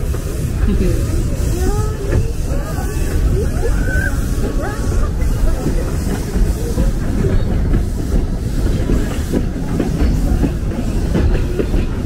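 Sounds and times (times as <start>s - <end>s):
train carriage rumbling on track: 0.0s - 12.0s
wheels knocking on rails: 4.2s - 12.0s.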